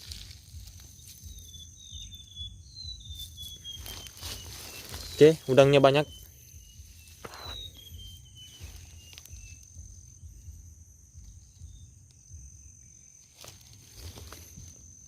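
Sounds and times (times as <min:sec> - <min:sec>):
high insect drone: 0:00.0 - 0:15.0
short chirps: 0:01.2 - 0:09.8
low rumble: 0:06.1 - 0:13.1.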